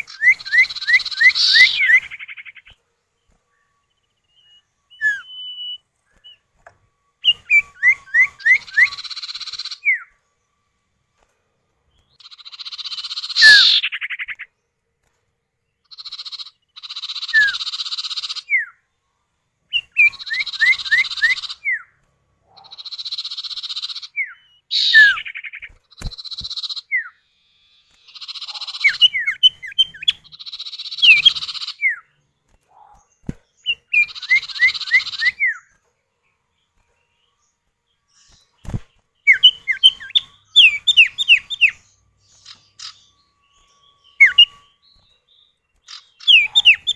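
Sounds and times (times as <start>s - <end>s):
birds buzzy rasps: 0.0s - 3.4s, 7.2s - 10.2s, 11.9s - 14.5s, 19.7s - 35.8s, 38.1s - 46.9s
birds whistling falling notes: 0.0s - 10.2s, 12.1s - 14.4s, 19.7s - 35.8s, 38.2s - 46.9s.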